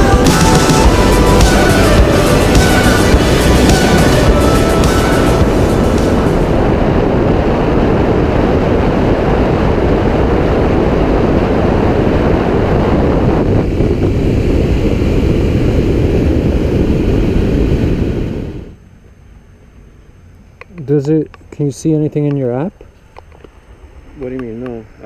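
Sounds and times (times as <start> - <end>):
motorcycle engine: 0.0 - 8.2
wind rushing over microphone: 0.0 - 18.8.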